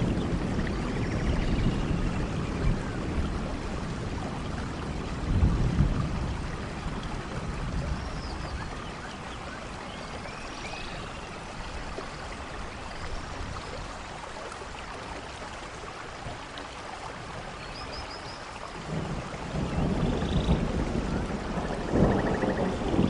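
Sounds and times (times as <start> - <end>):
thunder roll rumble: 0.0 - 8.7, 18.9 - 23.0
steady rain falling: 0.0 - 23.0.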